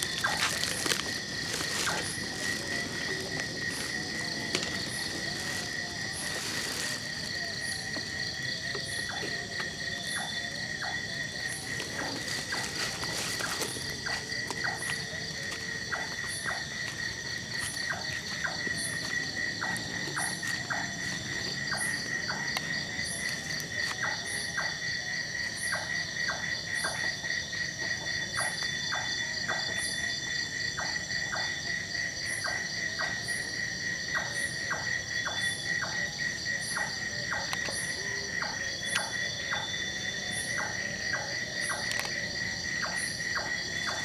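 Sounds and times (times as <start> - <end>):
insects trilling: 0.0 - 44.0
short clicking insect calls: 36.6 - 39.7, 40.3 - 44.0.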